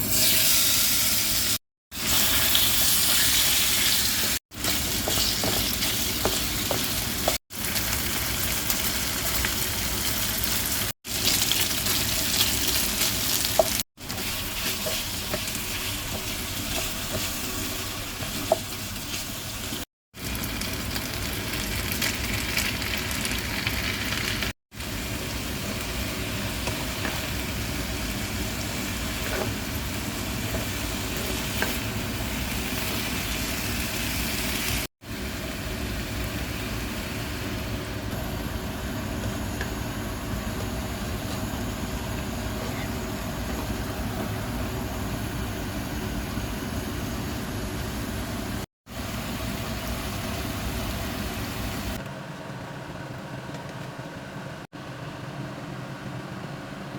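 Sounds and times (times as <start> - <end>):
food sizzling in a pan: 0.0 - 37.6, 48.9 - 52.0.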